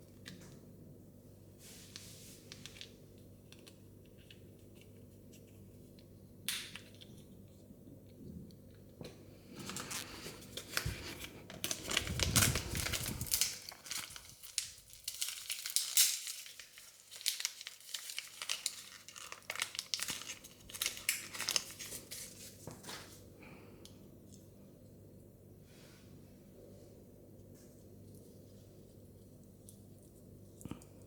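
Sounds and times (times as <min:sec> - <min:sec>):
plastic wrapping crinkling and tearing: 0:09.5 - 0:23.0.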